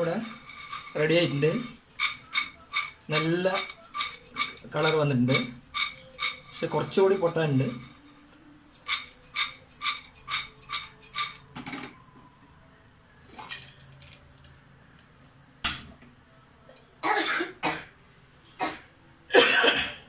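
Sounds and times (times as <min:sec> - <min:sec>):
metal utensil clinking on pot: 0:00.0 - 0:08.0, 0:08.8 - 0:11.5.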